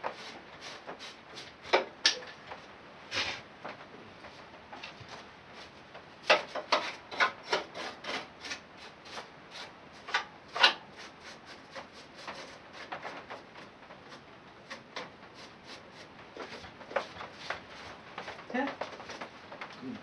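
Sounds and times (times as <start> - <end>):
stiff brush scrubbing dirt: 14.1 - 18.7.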